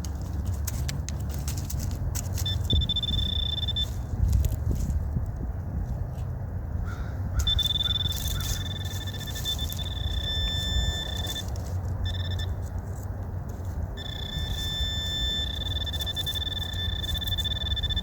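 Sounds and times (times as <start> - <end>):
scraping in dirt: 0.0 - 6.3, 7.4 - 18.0
metal detector tone: 2.2 - 4.9, 7.4 - 18.0.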